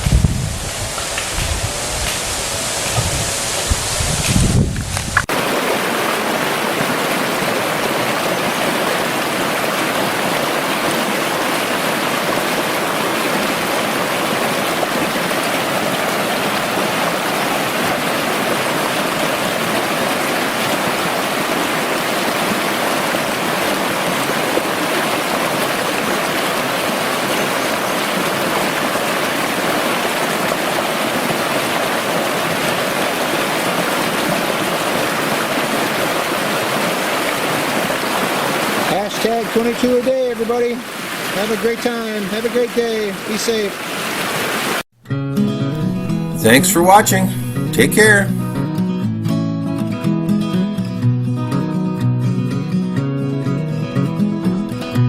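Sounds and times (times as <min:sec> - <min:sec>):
rushing stream water: 0:00.0 - 0:44.9.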